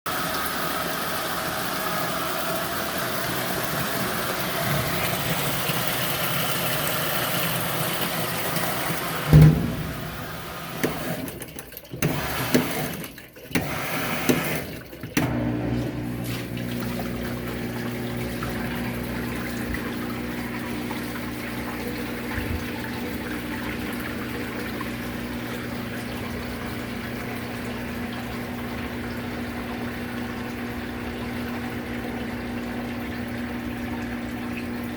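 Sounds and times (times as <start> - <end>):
washing machine motor humming: 0.1 - 34.9
water rushing into washing machine: 0.1 - 34.9
loud thump: 9.3 - 10.9.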